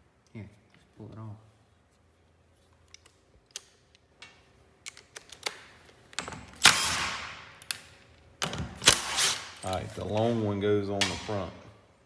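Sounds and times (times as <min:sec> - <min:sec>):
wrapping tearing: 0:08.8 - 0:10.0.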